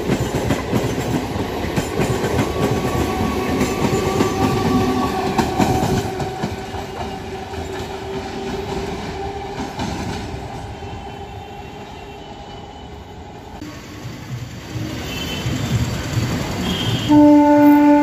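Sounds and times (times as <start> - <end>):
train wheels clattering over rail joints: 0.0 - 10.4
electric train whine: 0.0 - 18.0.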